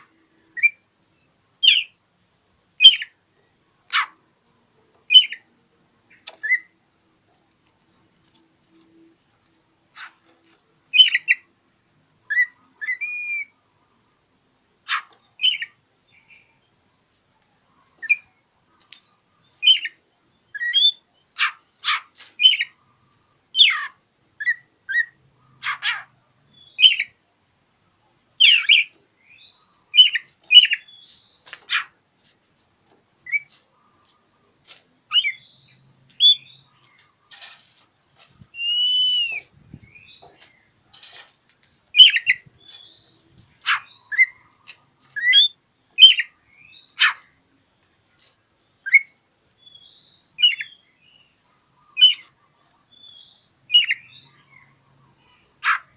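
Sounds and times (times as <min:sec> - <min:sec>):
songbird whistles and chirps: 0:00.4 - 0:02.0, 0:02.8 - 0:03.2, 0:05.1 - 0:05.5, 0:06.1 - 0:06.8, 0:10.9 - 0:11.5, 0:12.3 - 0:13.6, 0:14.9 - 0:16.6, 0:18.0 - 0:22.8, 0:23.6 - 0:27.2, 0:28.4 - 0:31.9, 0:35.1 - 0:37.0, 0:38.4 - 0:40.7, 0:41.9 - 0:47.4, 0:48.8 - 0:55.9.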